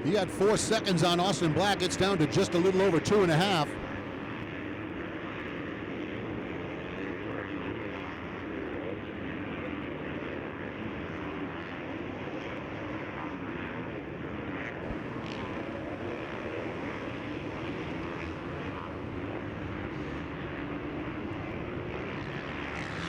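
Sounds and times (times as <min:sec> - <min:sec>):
motocross bike engines: 0:00.0 - 0:04.8, 0:14.8 - 0:23.0.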